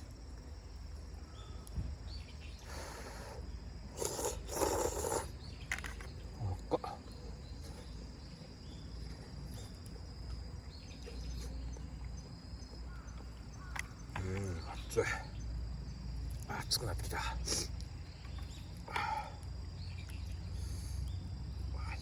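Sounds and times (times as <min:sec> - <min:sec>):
insect trill: 0:00.0 - 0:22.0
slurping noodles: 0:03.9 - 0:05.3.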